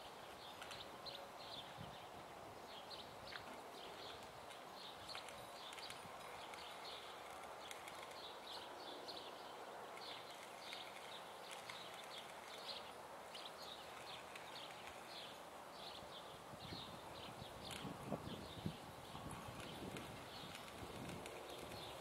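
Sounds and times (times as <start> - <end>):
low steady outdoor hiss: 0.0 - 22.0
small birds chirping: 0.0 - 22.0.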